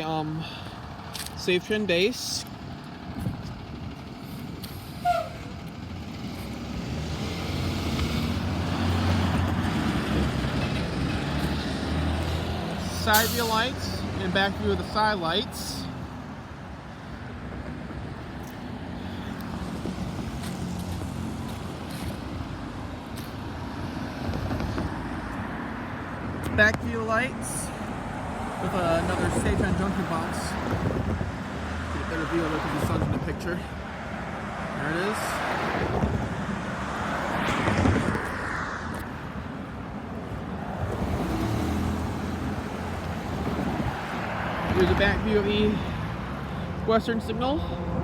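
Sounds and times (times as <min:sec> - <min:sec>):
cars driving along street: 0:00.0 - 0:48.0
road traffic passing: 0:00.0 - 0:48.0.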